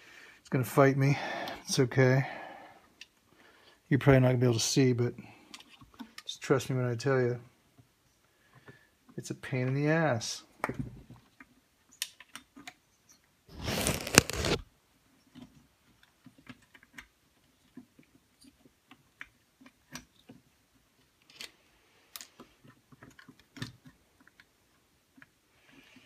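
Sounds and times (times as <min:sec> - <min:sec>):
loud scraping rustle: 0:13.5 - 0:14.6.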